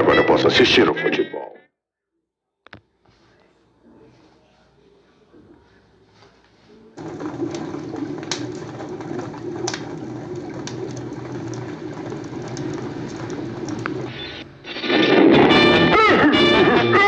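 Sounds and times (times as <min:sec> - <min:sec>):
cartoon fire crackling: 0:07.0 - 0:16.8.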